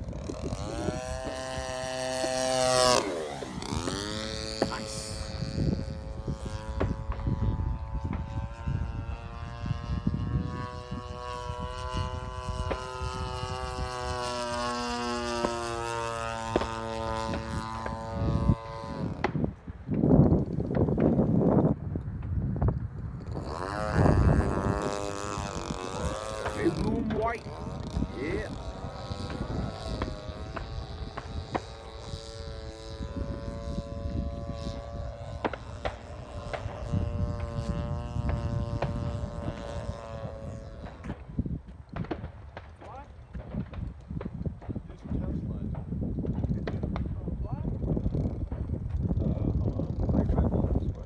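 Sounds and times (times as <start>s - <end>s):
model airplane engine droning: 0.0s - 51.0s
wind rumble on microphone: 0.0s - 51.0s.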